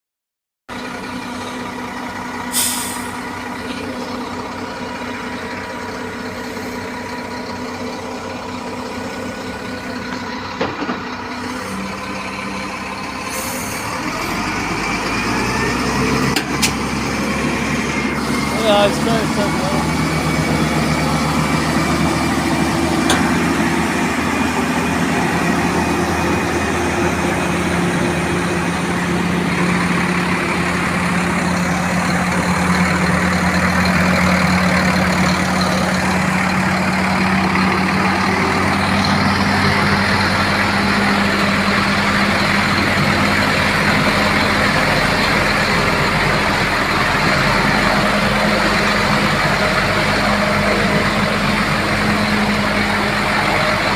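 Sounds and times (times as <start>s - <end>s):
diesel truck engine running: 0.7s - 53.9s.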